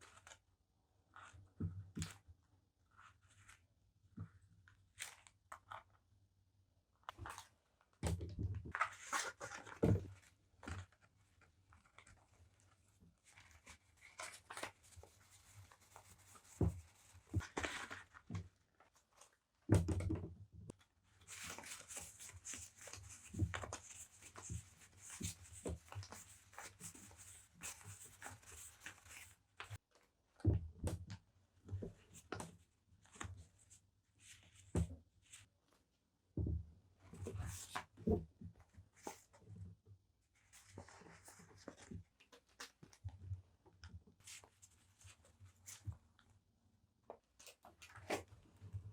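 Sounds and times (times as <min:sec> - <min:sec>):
paper rustling: 0:11.8 - 0:18.2.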